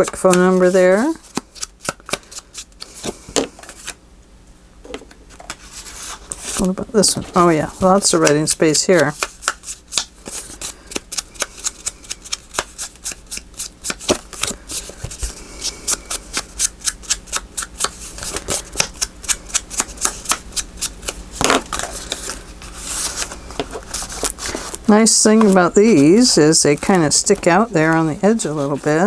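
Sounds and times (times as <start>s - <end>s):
heavy papery rustle: 21.8s - 29.0s
paper being brushed: 22.0s - 29.0s.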